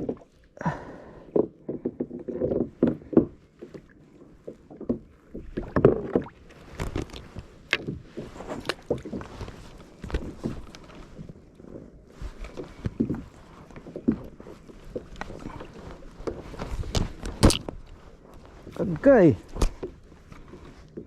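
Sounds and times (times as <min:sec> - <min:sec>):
knocks and clatter on a boat: 0:00.0 - 0:21.0.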